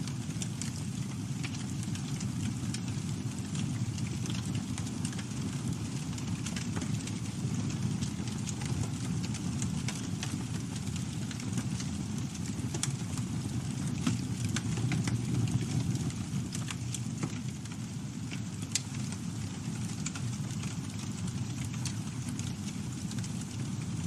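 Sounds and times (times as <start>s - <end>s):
campfire crackling: 0.1s - 24.0s.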